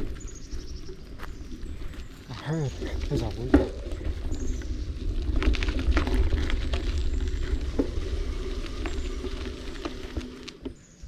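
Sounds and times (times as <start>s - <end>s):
bike tyres crackling on gravel: 0.0s - 11.0s
wind rumble on microphone: 0.0s - 11.0s
bike clicks and rattles: 3.6s - 11.0s.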